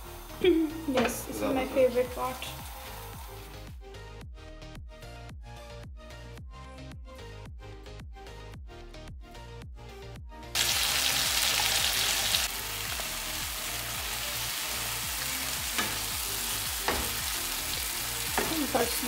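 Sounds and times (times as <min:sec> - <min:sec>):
gravy sizzling in a frying pan: 0:01.3 - 0:03.6, 0:10.6 - 0:19.0.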